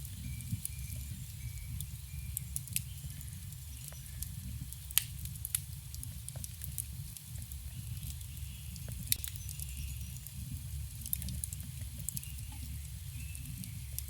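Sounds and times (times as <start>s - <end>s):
low rumble of flames: 0.0s - 14.0s
wood crackling: 0.0s - 14.0s
sharp pops of burning wood: 4.6s - 9.6s, 11.0s - 12.3s.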